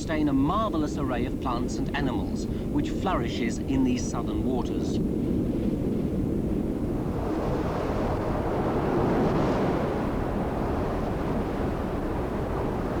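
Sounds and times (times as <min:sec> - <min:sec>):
wind: 0:00.0 - 0:13.0
waves breaking: 0:07.0 - 0:13.0.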